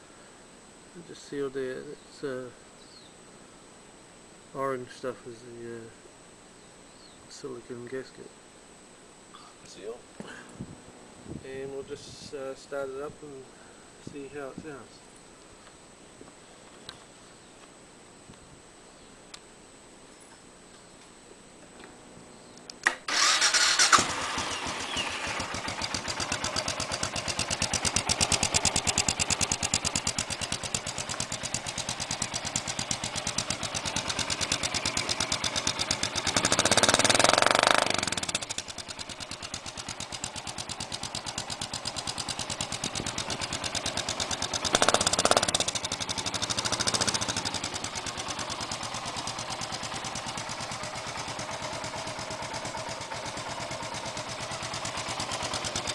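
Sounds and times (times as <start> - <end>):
motorcycle engine starting and idling: 22.8 - 55.9
motorcycle engine revving: 23.1 - 55.9.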